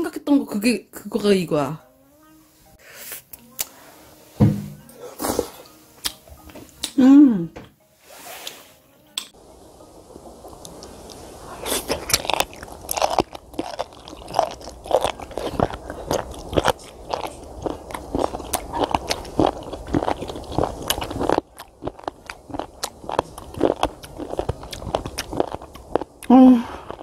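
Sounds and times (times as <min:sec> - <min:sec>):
crisp crunching chewing: 0:10.6 - 0:27.0.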